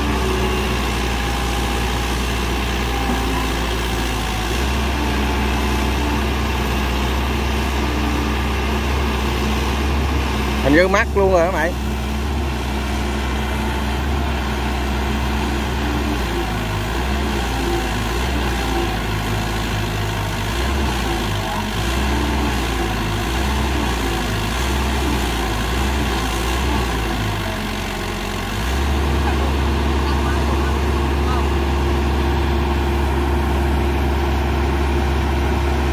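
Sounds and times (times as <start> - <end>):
excavator diesel engine droning: 0.0 - 35.9.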